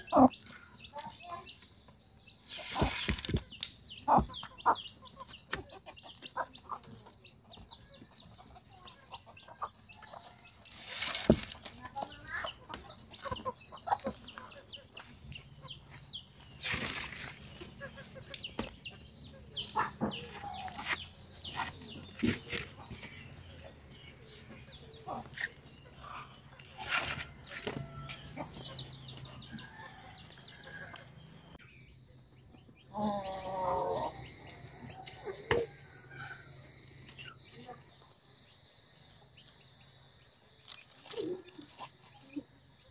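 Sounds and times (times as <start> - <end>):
birds chirping: 0.0 - 42.9
rustle: 10.6 - 12.0, 16.6 - 17.7.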